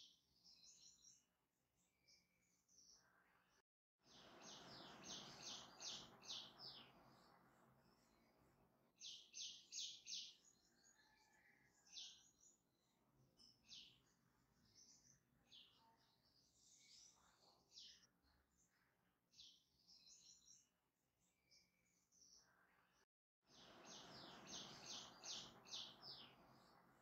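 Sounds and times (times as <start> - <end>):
faint birds chirping: 0.0 - 27.0.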